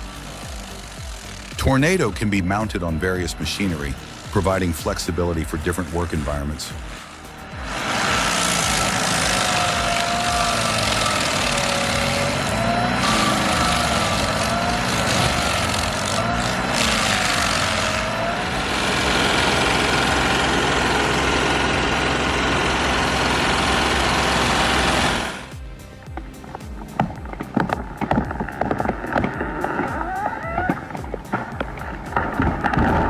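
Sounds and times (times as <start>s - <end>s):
stump grinder engine running: 0.0s - 33.0s
wavering whine: 0.0s - 33.0s.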